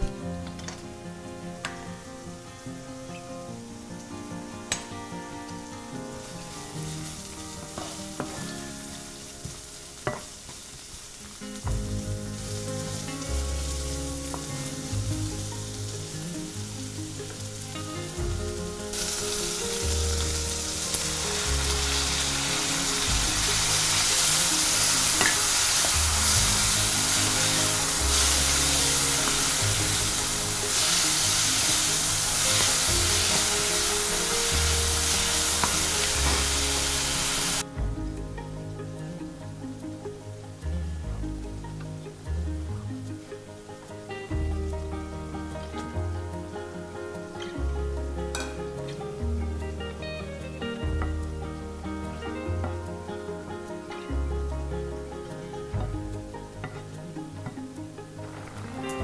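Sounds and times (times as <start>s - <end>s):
onions sizzling in oil: 6.2s - 37.6s
background music with bass pulse: 11.6s - 59.0s.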